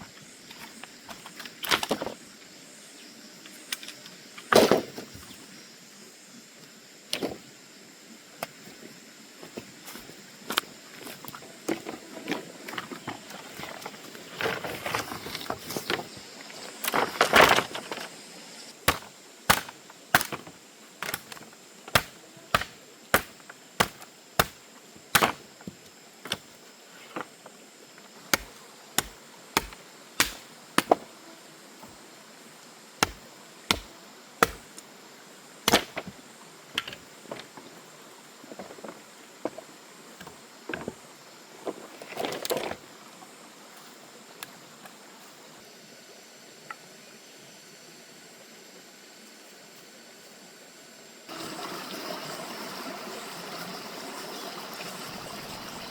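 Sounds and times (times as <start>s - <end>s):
rustling and scraping: 9.5s - 18.3s, 25.2s - 28.1s, 41.6s - 42.8s
chopping blows on wood: 18.9s - 25.4s, 28.3s - 31.0s, 33.0s - 34.7s.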